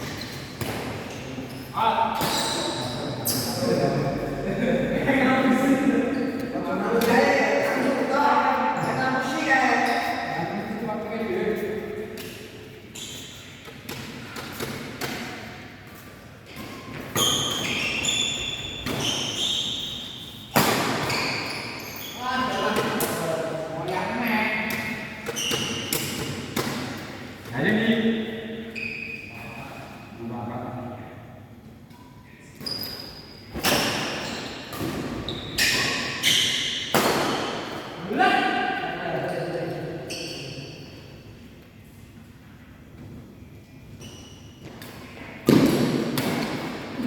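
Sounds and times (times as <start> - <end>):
shoes squeaking on court: 0.0 - 3.8, 11.5 - 23.2, 24.2 - 27.2, 28.7 - 29.7, 32.6 - 36.9, 40.0 - 41.0, 43.6 - 46.4.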